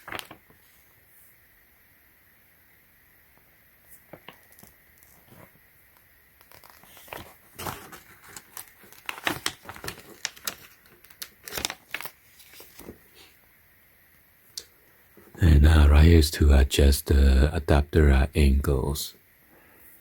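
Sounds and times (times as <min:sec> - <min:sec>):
paper crinkling and rustling: 0:00.0 - 0:00.6, 0:06.4 - 0:13.2.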